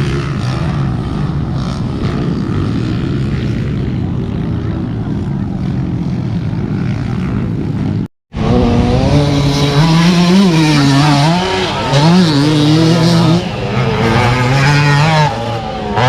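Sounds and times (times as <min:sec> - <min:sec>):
bike engine revving: 0:00.0 - 0:16.0
dirt bike engines running: 0:00.0 - 0:16.0.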